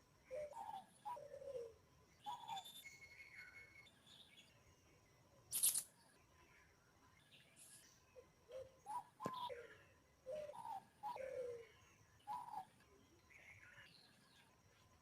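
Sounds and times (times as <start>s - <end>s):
birds chirping: 7.2s - 14.7s.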